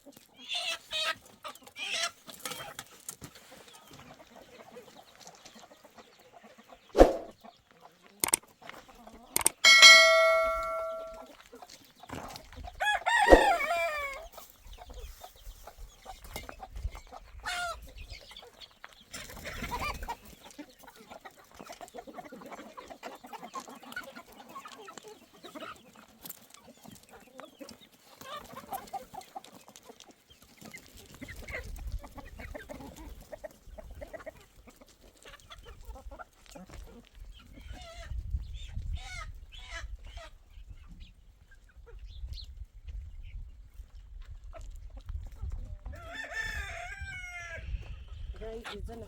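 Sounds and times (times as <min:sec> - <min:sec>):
chickens clucking: 0:00.0 - 0:49.0
rooster crowing: 0:12.8 - 0:14.2.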